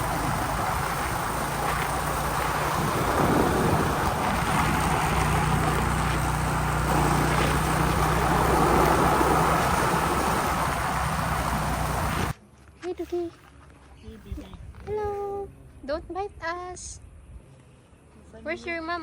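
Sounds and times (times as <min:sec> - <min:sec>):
motorcycle engine running: 0:00.0 - 0:12.3
wind and road noise: 0:00.0 - 0:12.4.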